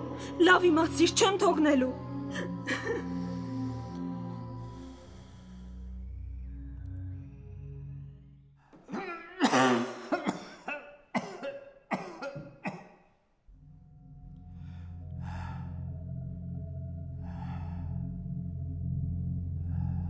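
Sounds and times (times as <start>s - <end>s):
low music drone: 0.0s - 8.6s, 13.5s - 20.0s
person coughing: 8.9s - 13.0s.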